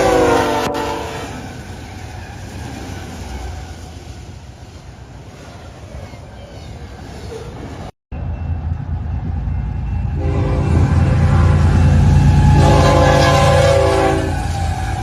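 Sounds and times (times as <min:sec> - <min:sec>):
train horn chord: 0:00.0 - 0:01.4, 0:10.1 - 0:15.0
train locomotive rumble: 0:00.0 - 0:15.0.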